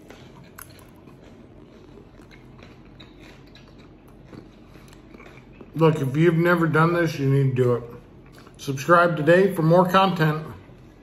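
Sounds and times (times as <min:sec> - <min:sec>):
person chewing food: 0:00.0 - 0:06.4, 0:07.8 - 0:08.8.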